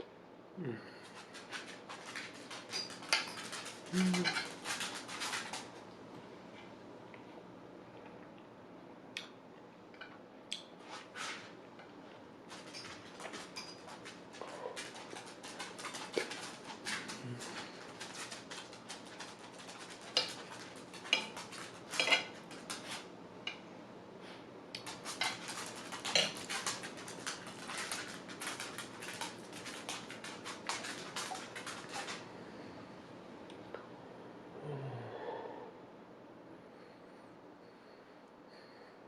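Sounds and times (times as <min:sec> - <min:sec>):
cutlery scraping a plate: 0:19.7 - 0:23.0, 0:24.9 - 0:26.9.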